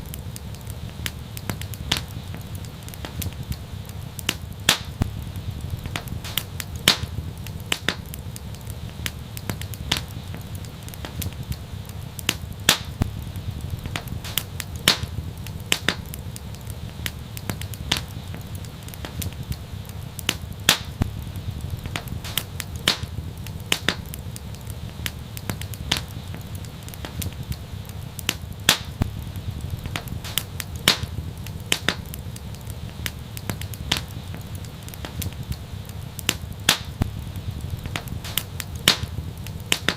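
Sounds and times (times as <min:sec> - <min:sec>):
steady low rumble: 0:00.0 - 0:39.9
wood fire crackling: 0:00.0 - 0:39.9.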